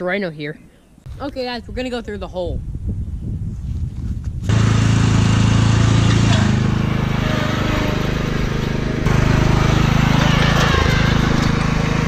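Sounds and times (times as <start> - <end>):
riding lawn mower engine: 4.5 - 12.0.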